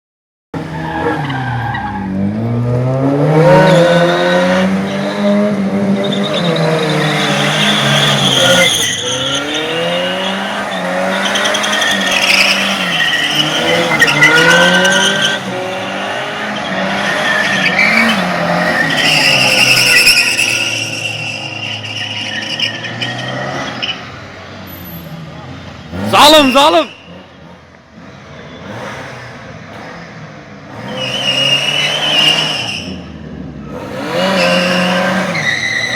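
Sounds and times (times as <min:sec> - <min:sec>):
car engine revving hard: 0:02.1 - 0:21.0, 0:27.1 - 0:35.9
tyres squealing: 0:06.0 - 0:24.1, 0:26.0 - 0:27.2, 0:33.8 - 0:35.9.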